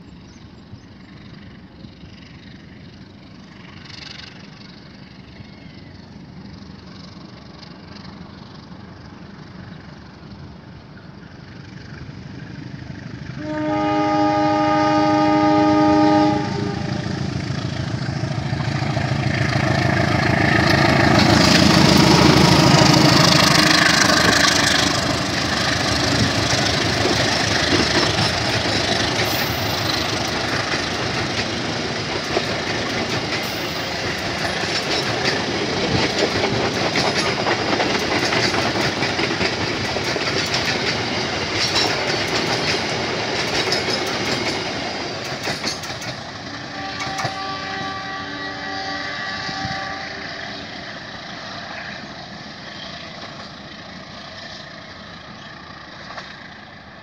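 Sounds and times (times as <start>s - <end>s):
coaches rolling on rails: 0.0s - 57.0s
locomotive engine rumbling: 0.0s - 57.0s
train horn blast: 13.4s - 17.3s, 46.4s - 50.6s.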